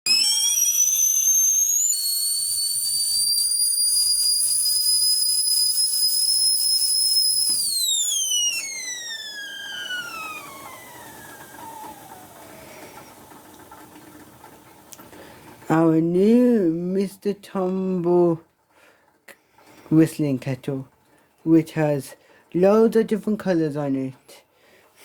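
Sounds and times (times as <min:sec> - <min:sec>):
kettle whistling: 0:00.0 - 0:15.7
steam hissing: 0:00.1 - 0:15.7.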